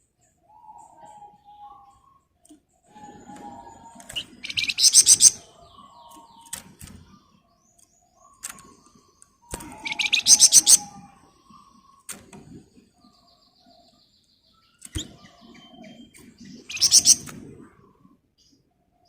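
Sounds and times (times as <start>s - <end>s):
songbird singing: 0.0s - 12.2s, 12.8s - 17.3s
soft low whistled notes: 0.2s - 2.3s
loud rattling bird trills: 4.1s - 5.5s, 9.6s - 10.9s, 16.7s - 17.2s.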